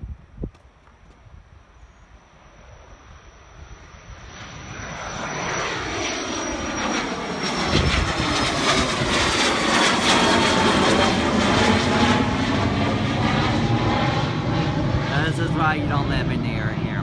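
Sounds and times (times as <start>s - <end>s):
airplane engines: 0.0s - 17.0s
high engine whine: 0.9s - 17.0s
deep rumble: 10.1s - 17.0s.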